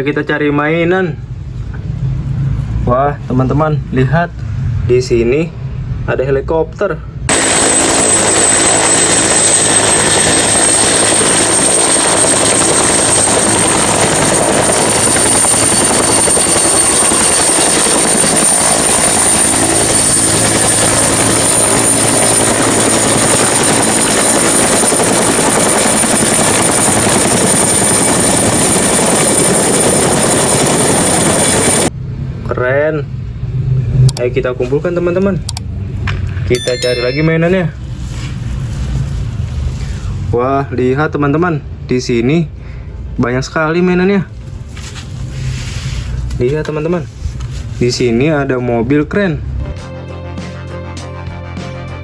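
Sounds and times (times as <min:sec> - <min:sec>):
helicopter rotor and engine: 0:07.3 - 0:31.9, 0:36.6 - 0:37.1.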